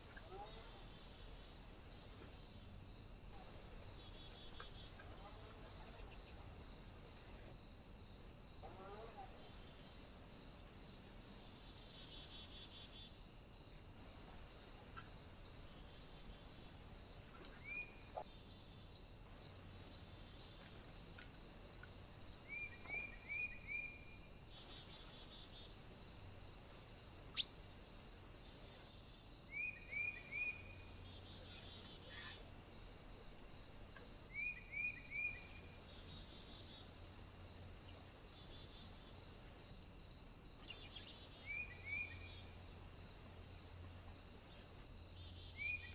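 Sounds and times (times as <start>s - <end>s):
steady high hiss: 0.0s - 45.9s
small bird chirping: 27.2s - 27.6s.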